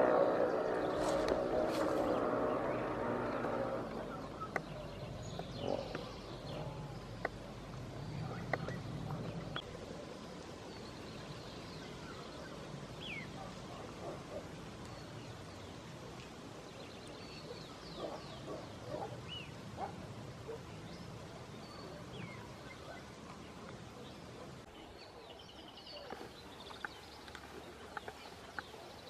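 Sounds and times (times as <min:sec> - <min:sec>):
faint outdoor hiss: 0:00.0 - 0:29.0.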